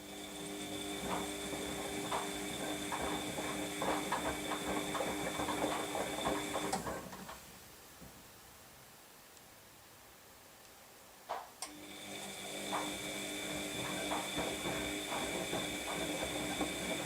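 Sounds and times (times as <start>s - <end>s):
washing machine motor humming: 0.0s - 7.2s, 11.7s - 17.0s.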